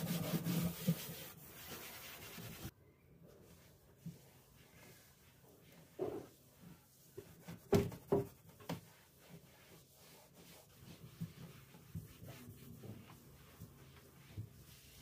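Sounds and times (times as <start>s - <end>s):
soft rubbing and scraping: 0.0s - 2.7s, 3.3s - 15.0s.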